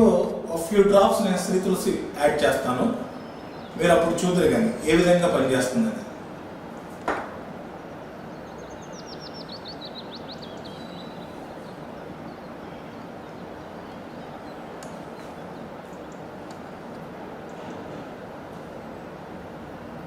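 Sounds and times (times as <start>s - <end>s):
background hiss: 0.0s - 20.0s
bird trilling high chirps: 3.1s - 3.8s, 8.2s - 16.0s
sharp knock: 7.1s - 7.4s.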